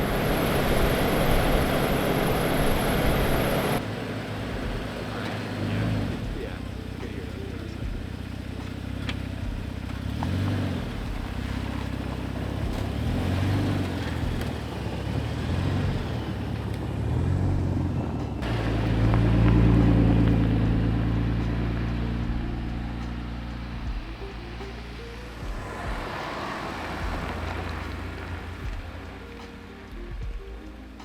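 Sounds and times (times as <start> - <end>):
pickup engine revving: 0.0 - 31.0
steady low drone: 0.0 - 31.0.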